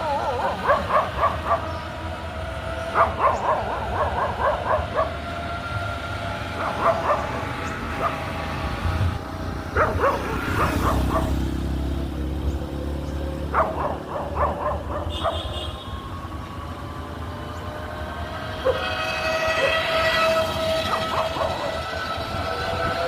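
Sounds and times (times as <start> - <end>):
dog barking: 0.2 - 1.8, 2.9 - 5.2, 6.6 - 8.3, 9.7 - 11.5, 13.5 - 15.6, 20.9 - 22.0.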